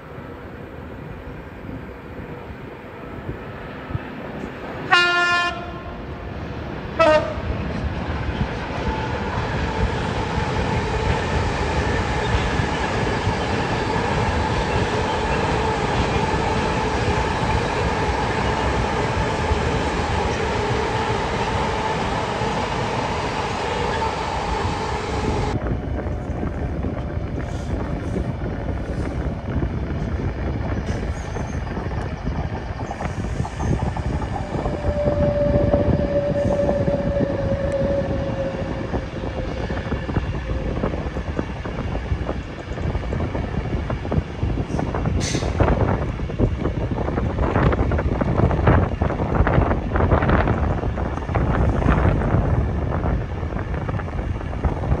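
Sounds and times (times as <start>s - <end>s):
train rumbling past: 0.0s - 55.0s
locomotive two-tone horn: 4.9s - 5.9s, 7.0s - 7.4s, 34.6s - 39.8s.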